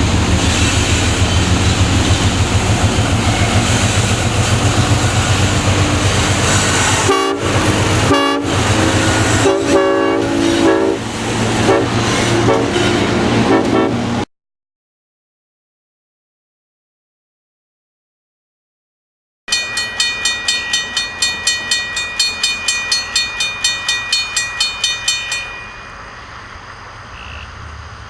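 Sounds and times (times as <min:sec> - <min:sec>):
train engine rumble: 0:00.0 - 0:14.2, 0:19.5 - 0:28.0
locomotive horn blasts: 0:06.0 - 0:14.2.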